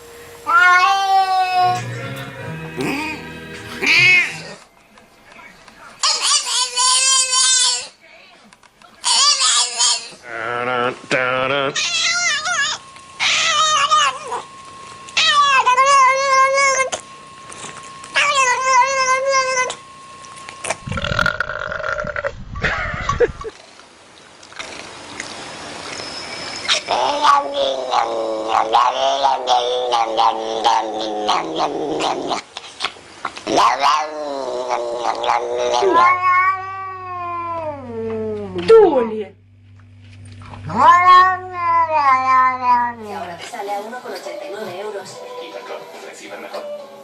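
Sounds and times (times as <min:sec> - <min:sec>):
cat yowling: 0:00.4 - 0:01.8, 0:03.8 - 0:04.6, 0:11.8 - 0:14.5, 0:15.2 - 0:17.0, 0:18.2 - 0:19.8, 0:26.7 - 0:32.2, 0:33.6 - 0:38.5, 0:40.6 - 0:43.0.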